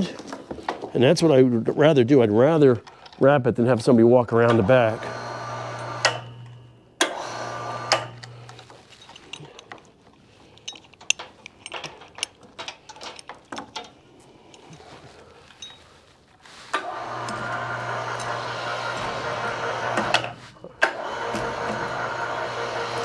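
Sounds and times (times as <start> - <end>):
winch chain metallic clicks: 7.9 - 15.8.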